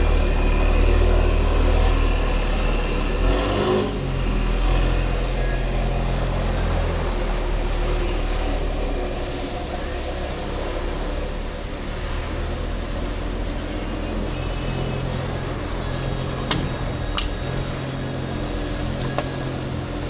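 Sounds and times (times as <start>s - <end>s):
road noise: 0.0s - 20.0s
motorcycle engine running: 12.5s - 20.0s.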